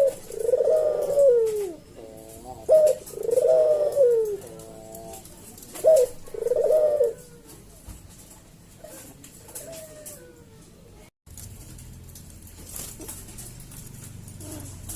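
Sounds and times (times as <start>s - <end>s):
dove cooing: 0.0s - 7.8s, 12.9s - 14.9s.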